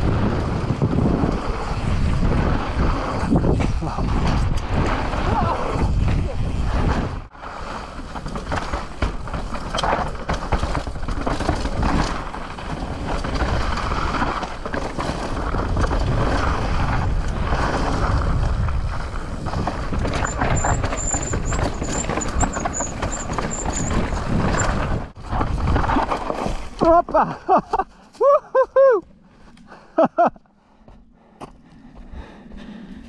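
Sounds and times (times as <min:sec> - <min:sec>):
bike tyres rumbling over rocks: 0:00.0 - 0:28.2
bike knocking: 0:08.1 - 0:13.6, 0:19.5 - 0:24.8
brake squeal: 0:19.6 - 0:24.8.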